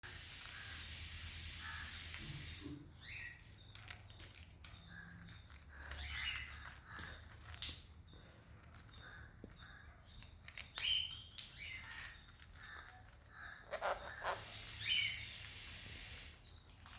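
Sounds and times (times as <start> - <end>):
steady hiss: 0.0 - 3.2, 13.8 - 16.5
parrots chirping softly: 0.1 - 16.9.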